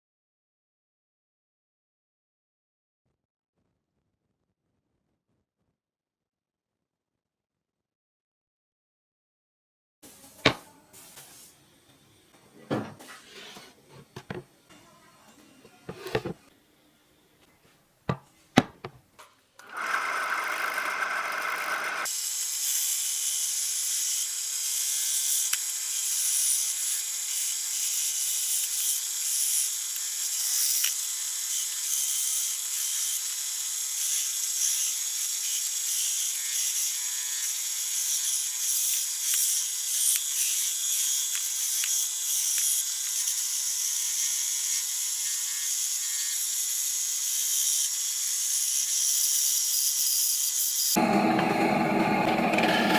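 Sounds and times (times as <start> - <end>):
power tool whirring: 19.6 - 52.9.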